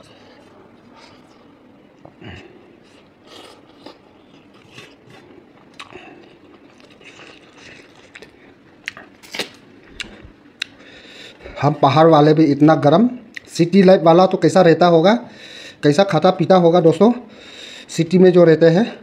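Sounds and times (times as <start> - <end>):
person chewing food: 2.0 - 11.4.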